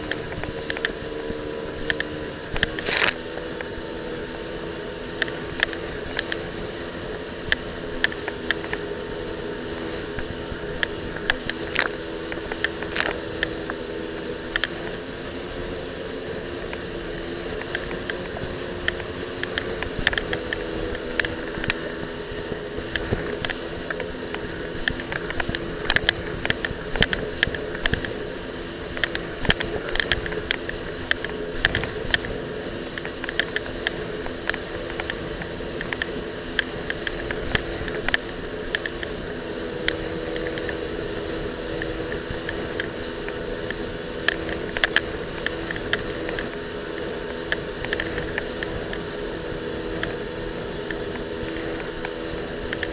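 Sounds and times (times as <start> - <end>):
jet ski engine running: 0.0 - 52.9
camera rattling against mount: 1.9 - 3.3.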